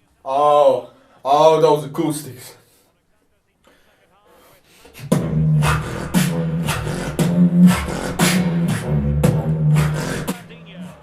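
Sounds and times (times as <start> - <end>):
person beatboxing with echo: 4.4 - 11.0.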